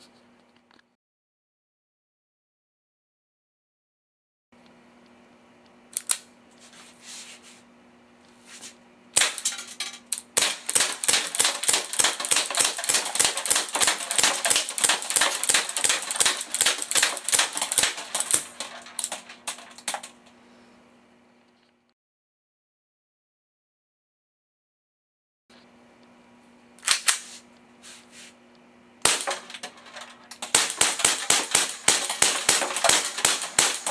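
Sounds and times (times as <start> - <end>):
airsoft gun shots: 9.2 - 9.5, 10.4 - 20.1, 29.0 - 29.7, 30.4 - 33.9.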